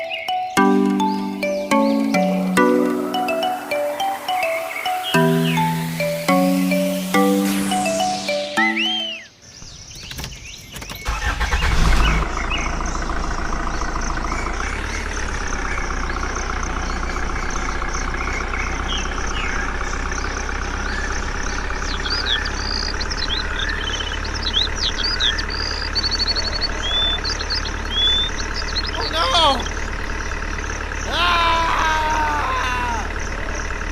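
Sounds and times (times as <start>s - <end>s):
birds chirping: 0.0s - 33.9s
tractor engine starting and idling: 9.7s - 31.7s, 33.0s - 33.9s.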